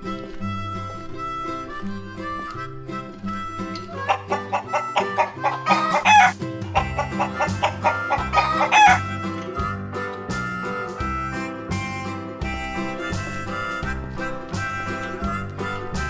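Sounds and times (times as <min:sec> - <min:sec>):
harmonica and guitar tune: 0:00.0 - 0:16.0
chicken clucking: 0:03.3 - 0:10.9
rooster crowing: 0:04.0 - 0:09.1.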